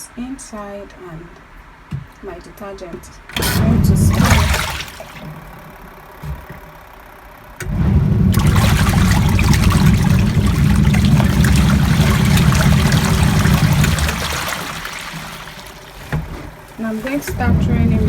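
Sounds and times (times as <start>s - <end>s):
washing machine churning water: 3.3s - 6.6s, 7.6s - 18.0s.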